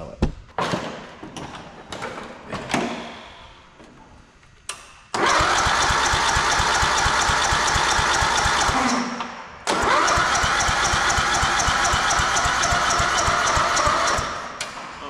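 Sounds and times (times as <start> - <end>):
motor running with fast beat: 5.2 - 9.0, 9.8 - 14.6.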